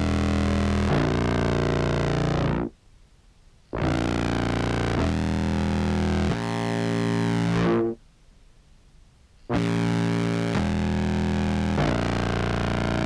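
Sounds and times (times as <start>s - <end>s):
distorted low clarinet notes: 9.5s - 13.0s.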